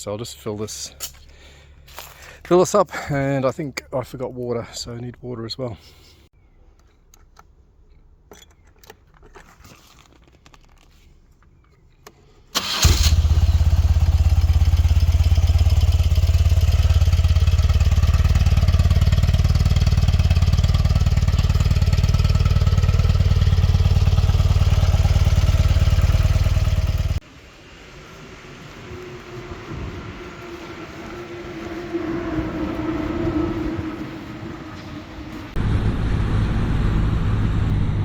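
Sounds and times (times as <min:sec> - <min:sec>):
motorcycle engine cranking and running: 0:12.6 - 0:27.2.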